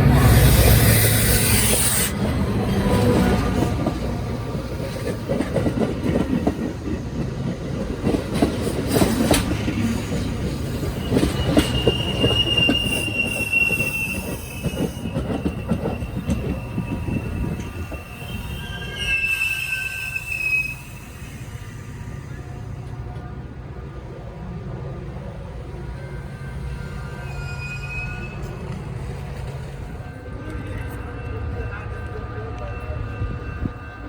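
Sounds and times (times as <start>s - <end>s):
train rumbling on rails: 0.0s - 34.0s
high-pitched wheel squeal: 10.8s - 21.4s, 27.0s - 28.6s.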